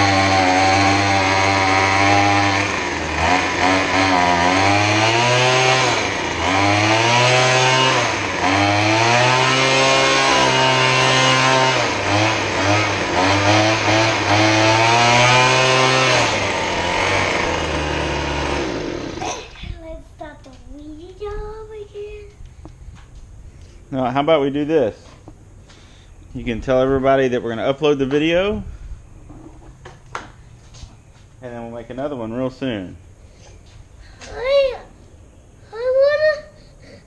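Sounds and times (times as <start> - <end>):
leaf blower engine revving: 0.0 - 19.7.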